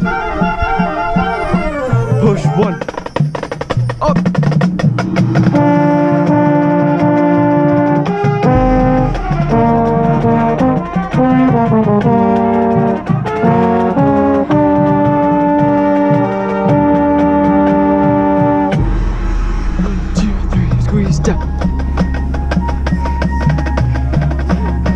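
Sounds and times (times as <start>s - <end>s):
drum hits: 3.6s - 15.8s, 18.4s - 24.9s
deep bass line: 3.7s - 16.0s, 16.8s - 24.9s
brass playing chords: 4.8s - 24.9s.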